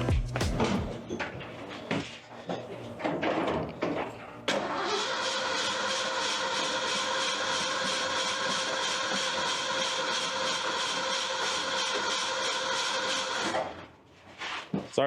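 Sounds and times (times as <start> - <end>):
starter motor cranking: 4.5 - 13.8.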